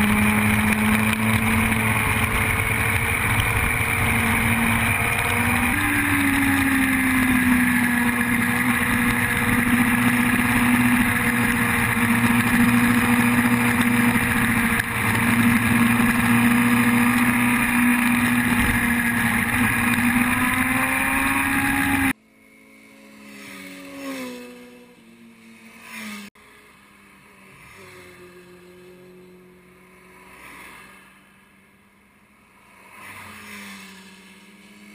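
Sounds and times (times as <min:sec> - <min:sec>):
steady rushing noise: 0:00.0 - 0:22.2
faint motorcycle engine notes gliding: 0:00.0 - 0:34.9
motorcycle engine at high revs: 0:00.0 - 0:34.9.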